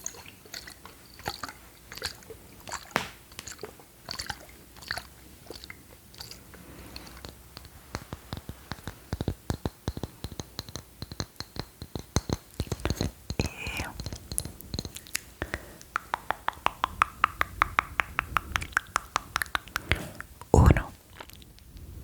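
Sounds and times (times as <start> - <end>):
sharp clicks and smacks: 2.9 - 3.7, 7.0 - 21.9
quick clicks and taps: 7.2 - 20.2.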